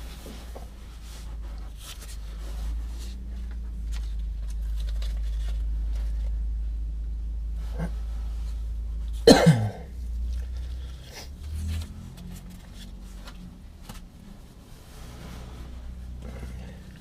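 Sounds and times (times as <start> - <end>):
low hum: 0.0 - 17.0
person coughing: 9.2 - 10.0.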